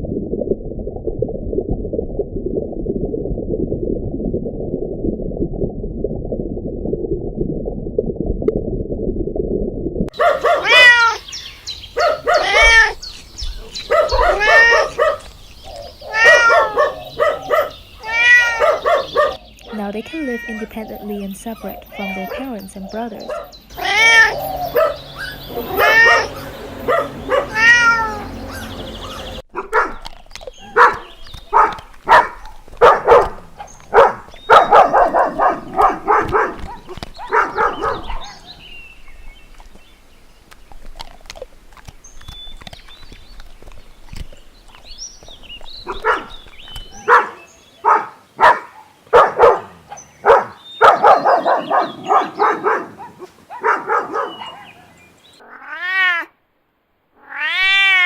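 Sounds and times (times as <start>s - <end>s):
kittens mewing: 10.2s - 21.0s, 21.6s - 22.5s, 23.7s - 29.4s, 55.4s - 56.3s, 57.2s - 58.0s.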